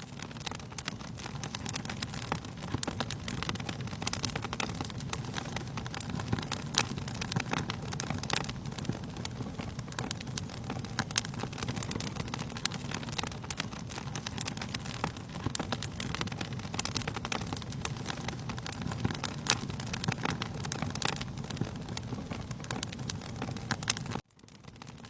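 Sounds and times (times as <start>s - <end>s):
fire pops and snaps: 0.0s - 25.0s
wood fire crackling: 0.0s - 25.0s.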